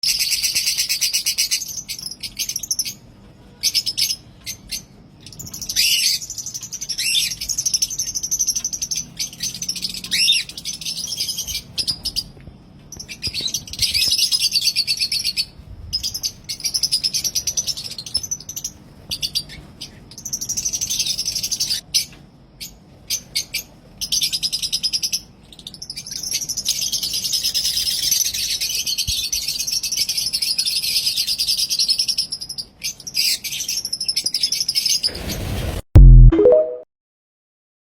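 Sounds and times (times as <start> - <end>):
lovebirds chirping shrilly: 3.6 - 12.3.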